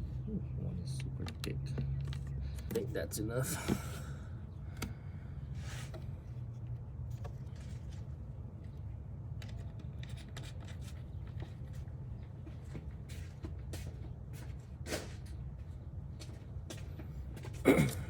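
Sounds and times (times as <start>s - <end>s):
steady low hum: 0.0s - 18.0s
light clicks and taps: 1.0s - 2.8s.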